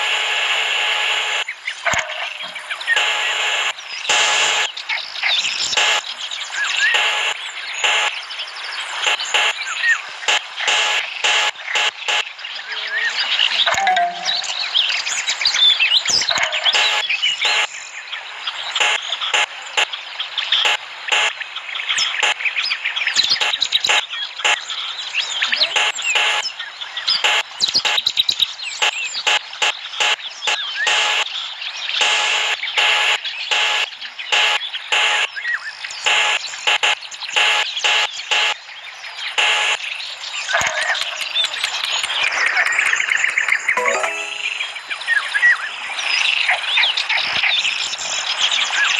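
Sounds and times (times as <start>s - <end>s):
birds chirping: 13.6s - 15.2s.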